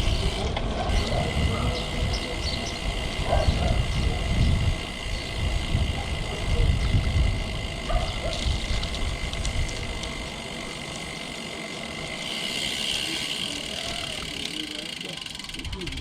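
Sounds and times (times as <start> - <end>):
wind rumble on microphone: 0.0 - 10.3
traffic: 0.0 - 16.0
faint clicks: 8.2 - 10.2.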